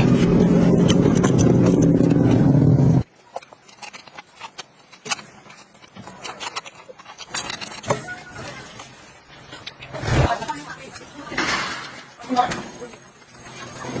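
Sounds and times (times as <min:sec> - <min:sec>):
engine running: 0:00.0 - 0:03.1.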